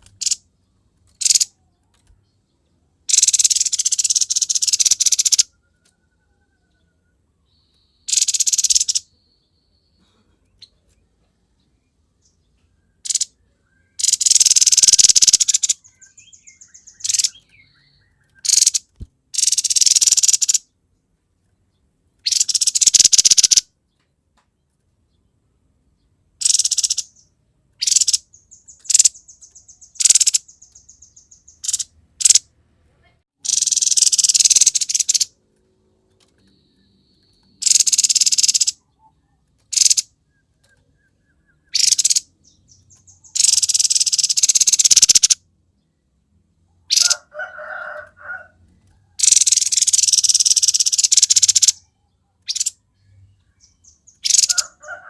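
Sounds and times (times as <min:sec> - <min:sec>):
bird rasping calls: 0:41.6 - 0:42.2, 0:46.9 - 0:48.5, 0:49.2 - 0:51.8, 0:54.2 - 0:55.0
bird high trills: 0:53.8 - 0:55.0.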